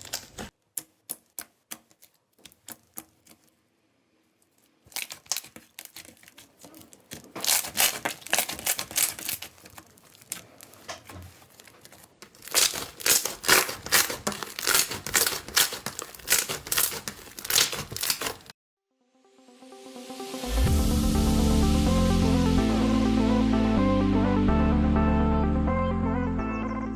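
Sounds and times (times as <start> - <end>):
slime squeezed crackling and popping: 4.6 - 18.5.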